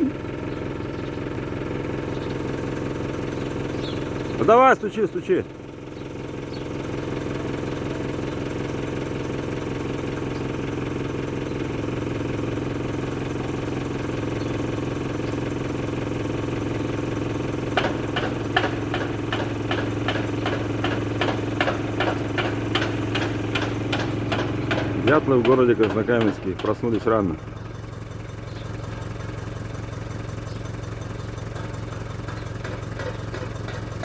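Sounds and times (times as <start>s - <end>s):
engine-like hum: 0.0s - 34.0s
rapid repeated knocking: 17.8s - 27.1s, 32.6s - 34.0s.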